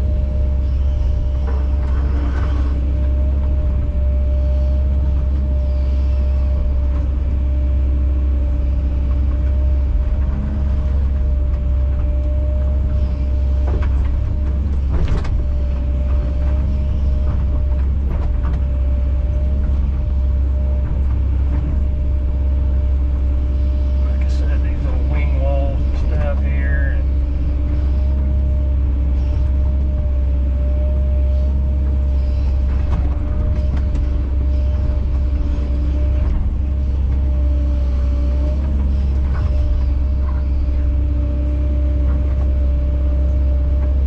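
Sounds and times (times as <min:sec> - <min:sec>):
excavator diesel engine running: 0:00.0 - 0:44.0
steady machine whine: 0:00.0 - 0:44.0.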